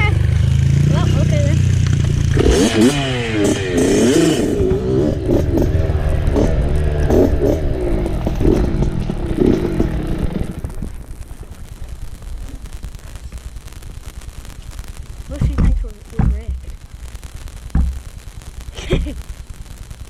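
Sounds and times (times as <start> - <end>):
dirt bike engine revving: 0.0 - 10.9.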